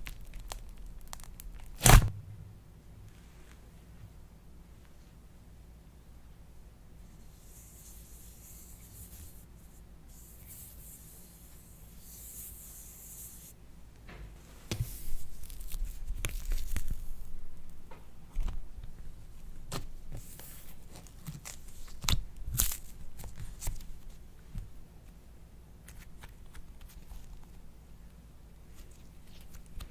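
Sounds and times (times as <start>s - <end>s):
faint hiss: 7.0s - 15.4s.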